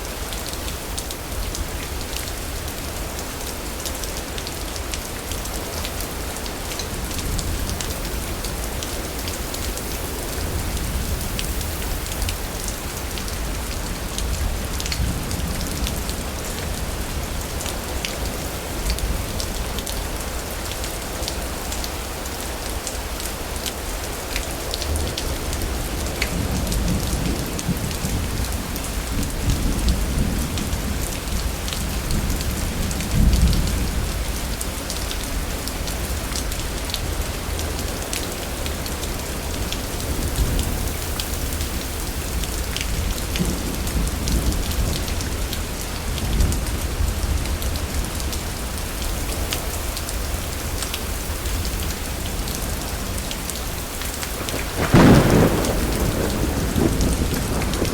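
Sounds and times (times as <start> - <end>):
heavy rain: 0.0 - 57.9
rolls of thunder: 54.4 - 57.9.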